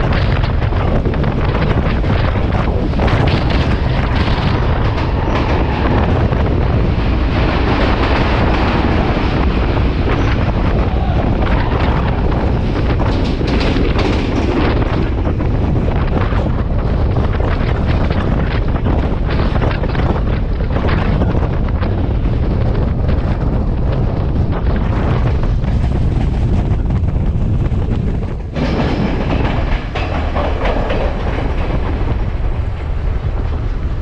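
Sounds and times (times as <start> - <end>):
train wheels rumbling on rails: 0.0 - 34.0
wind buffeting microphone: 0.0 - 34.0.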